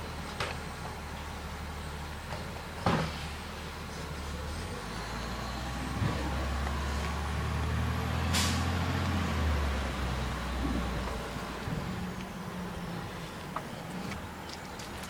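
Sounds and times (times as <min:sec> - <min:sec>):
garbage truck engine running: 0:00.0 - 0:15.0
air release hiss: 0:08.3 - 0:08.7.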